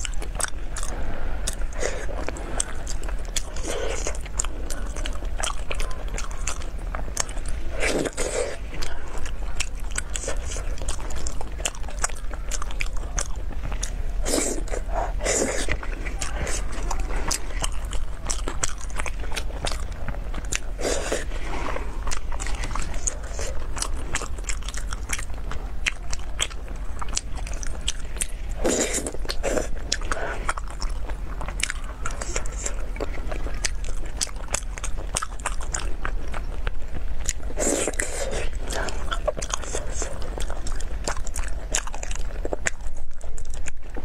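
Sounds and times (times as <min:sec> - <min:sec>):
person chewing food: 0:00.0 - 0:44.0.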